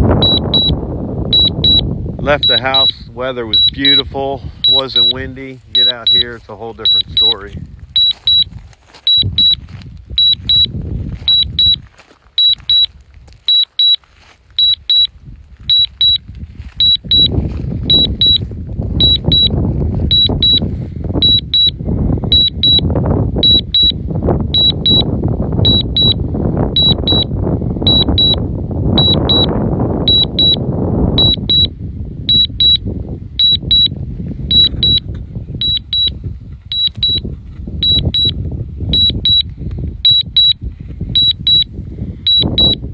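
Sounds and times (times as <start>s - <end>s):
high-pitched double beeps: 0.0s - 8.5s, 9.1s - 9.6s, 10.2s - 11.8s, 12.4s - 12.9s, 13.5s - 14.0s, 14.6s - 15.1s, 15.7s - 16.2s, 16.8s - 18.4s, 19.0s - 27.3s, 27.9s - 31.7s, 32.3s - 32.8s, 33.4s - 36.1s, 36.7s - 37.2s, 37.8s - 40.6s, 41.2s - 41.7s, 42.3s - 42.8s
wind buffeting microphone: 0.0s - 42.9s.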